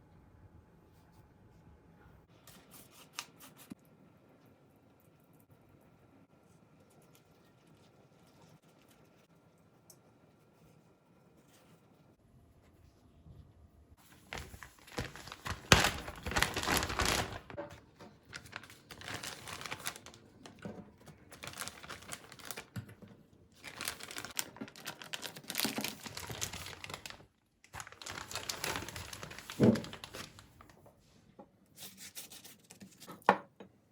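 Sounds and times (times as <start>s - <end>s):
plastic packaging crinkling: 14.0s - 22.8s, 23.6s - 30.8s.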